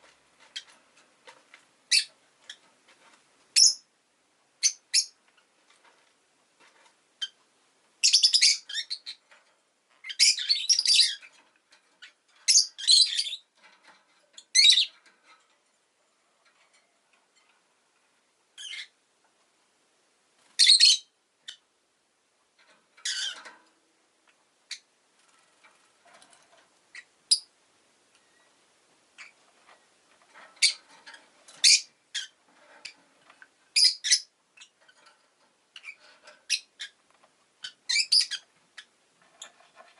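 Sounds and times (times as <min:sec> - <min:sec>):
lovebird chirping: 0:01.9 - 0:02.6, 0:03.6 - 0:03.9, 0:04.6 - 0:05.2, 0:08.0 - 0:09.2, 0:10.0 - 0:11.3, 0:12.0 - 0:13.5, 0:14.4 - 0:15.0, 0:18.6 - 0:19.0, 0:20.6 - 0:21.6, 0:26.9 - 0:27.5, 0:29.2 - 0:29.4, 0:31.6 - 0:33.0, 0:33.7 - 0:34.8, 0:35.8 - 0:37.0, 0:37.6 - 0:38.9.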